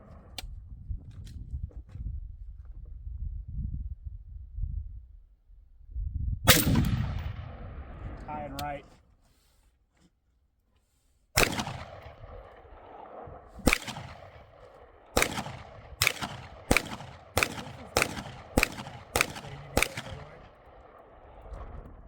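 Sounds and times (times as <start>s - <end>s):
rifle gunshots with echo: 6.5s - 8.8s, 11.4s - 21.7s.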